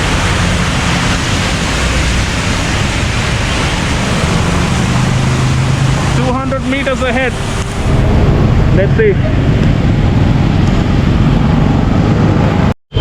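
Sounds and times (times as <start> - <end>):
tyres hissing on wet road: 0.0 - 8.1
passing car engines humming: 0.0 - 12.7.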